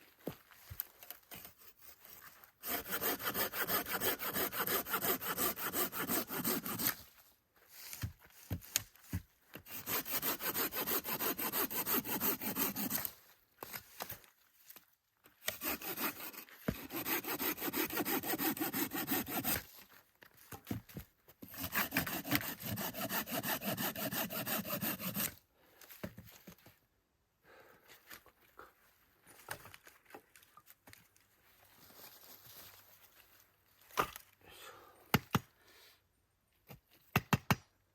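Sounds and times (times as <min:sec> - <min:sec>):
hand saw cutting wood: 0:01.3 - 0:07.0, 0:09.6 - 0:13.1, 0:15.4 - 0:19.7, 0:21.4 - 0:25.4.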